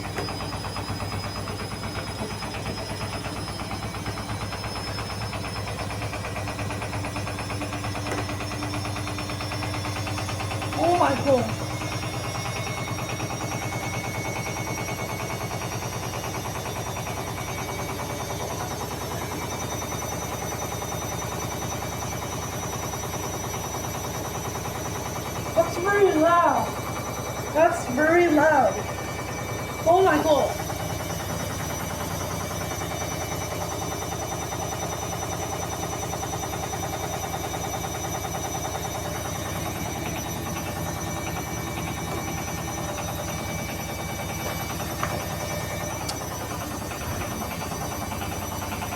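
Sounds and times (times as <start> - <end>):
washing machine drum knocking: 0.0 - 10.8.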